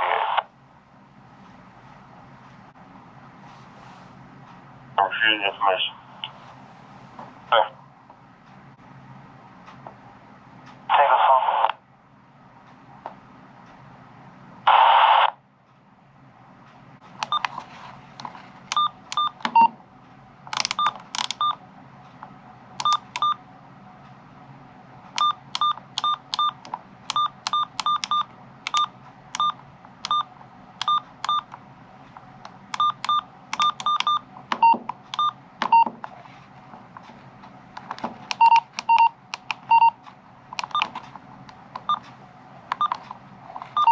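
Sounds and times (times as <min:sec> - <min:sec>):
radio static burst: 0:10.9 - 0:11.8, 0:14.7 - 0:15.4.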